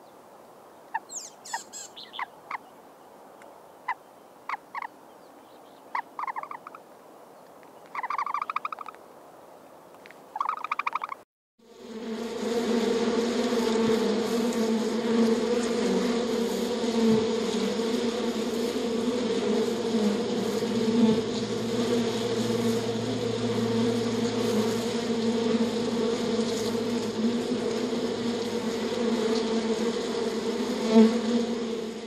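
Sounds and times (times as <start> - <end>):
honeybees buzzing: 11.6 - 32.0.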